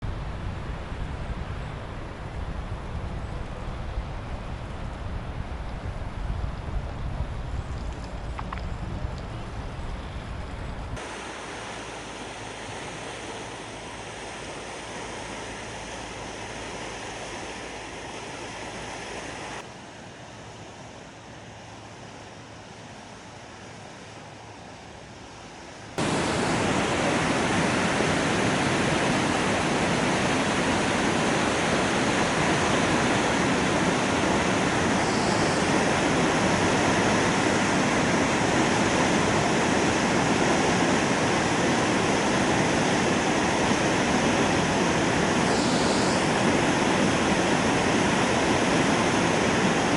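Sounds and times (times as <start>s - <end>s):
waterfall rushing: 11.0s - 19.6s, 26.0s - 49.9s.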